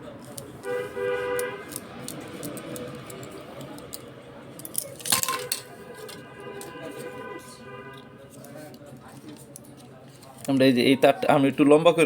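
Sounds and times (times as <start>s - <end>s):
vehicle horn: 0.6s - 1.7s, 5.4s - 8.3s.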